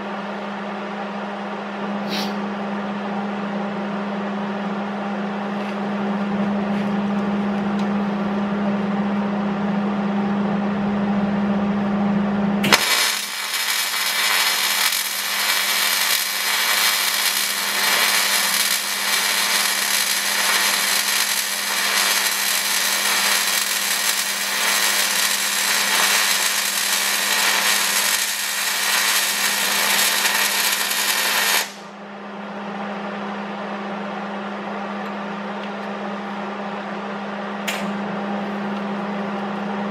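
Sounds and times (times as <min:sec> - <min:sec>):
electrical hum: 0:00.0 - 0:39.9
hissing metalworking tool: 0:02.1 - 0:02.4, 0:12.7 - 0:31.8.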